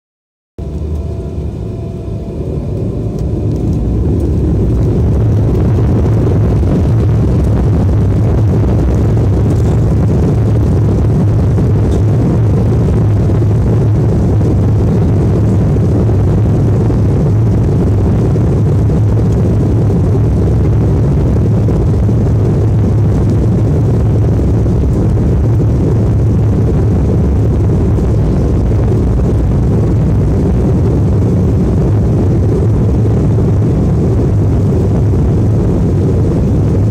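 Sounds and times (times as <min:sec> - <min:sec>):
airplane engines rumbling: 0:00.6 - 0:36.9.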